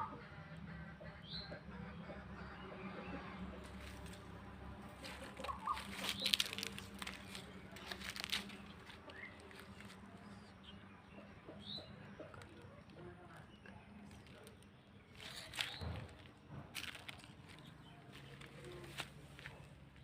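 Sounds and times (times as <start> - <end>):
birds chirping: 0.0 - 20.0
rustling and clicking: 5.0 - 10.0, 14.0 - 19.6.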